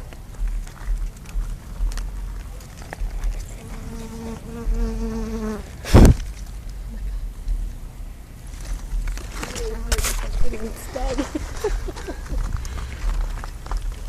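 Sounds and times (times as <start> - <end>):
flying insect buzzing: 3.6 - 6.2.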